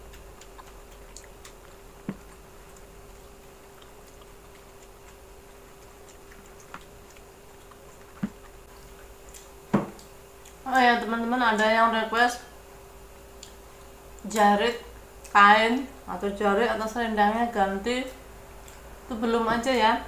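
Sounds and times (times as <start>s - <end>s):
faint chewing: 0.0s - 11.8s, 13.1s - 14.4s, 18.1s - 19.1s
steady low hum: 0.0s - 20.0s.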